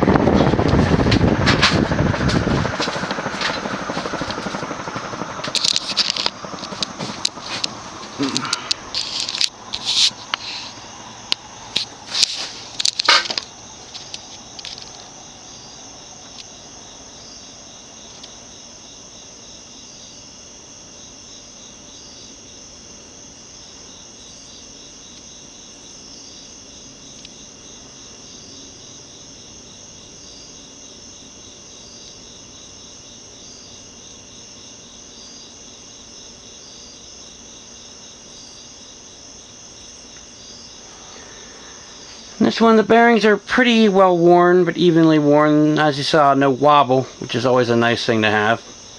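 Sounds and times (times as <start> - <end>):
insects chirping: 0.0 - 48.9
sharp clicks and knocks: 11.8 - 14.9.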